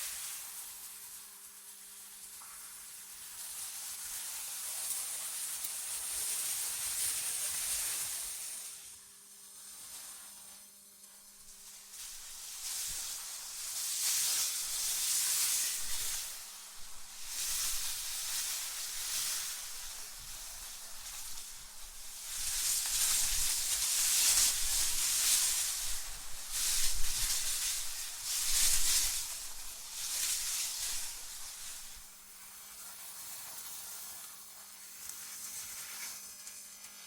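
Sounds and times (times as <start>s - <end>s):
gusty wind hissing: 11.5s - 32.1s.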